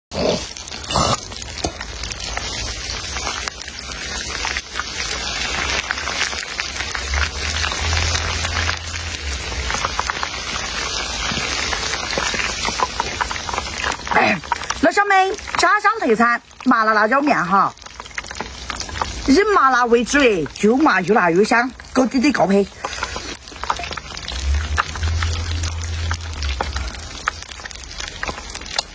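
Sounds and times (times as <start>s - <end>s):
crackling sizzle: 0.1s - 28.9s
low hum: 23.9s - 27.6s.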